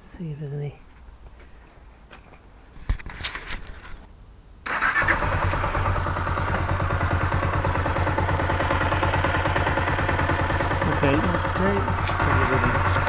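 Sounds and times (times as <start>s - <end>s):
motorcycle engine starting and running: 4.6s - 13.0s.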